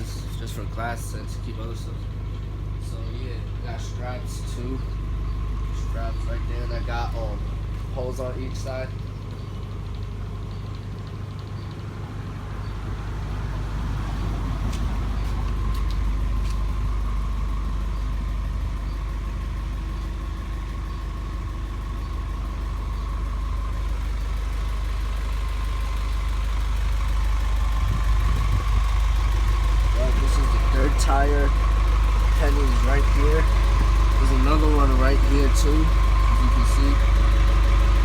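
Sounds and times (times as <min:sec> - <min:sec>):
truck engine idling: 0:00.0 - 0:38.0.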